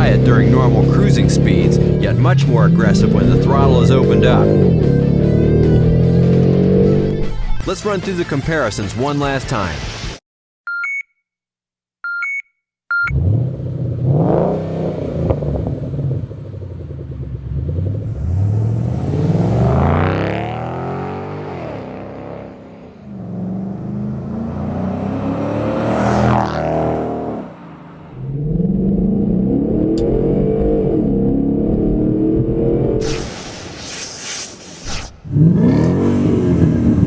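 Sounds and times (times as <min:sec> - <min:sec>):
car engine revving: 0:00.0 - 0:07.6, 0:13.1 - 0:34.0, 0:34.8 - 0:37.0
short electronic beeps: 0:10.7 - 0:11.2, 0:12.0 - 0:13.2.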